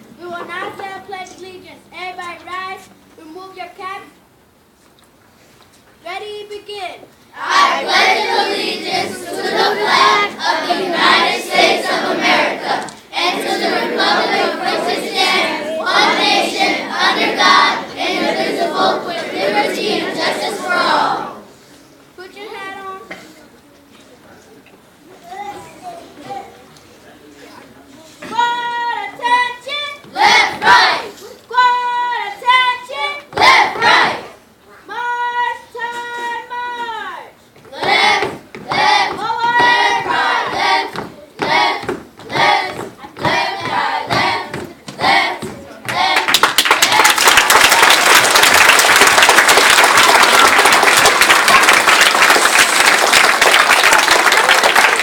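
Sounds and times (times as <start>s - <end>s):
children singing in unison: 7.4s - 21.4s, 30.0s - 31.1s, 33.3s - 34.4s, 37.7s - 46.4s
group clapping: 30.0s - 31.1s, 33.3s - 34.3s, 37.8s - 55.0s
audience applauding: 46.2s - 55.0s.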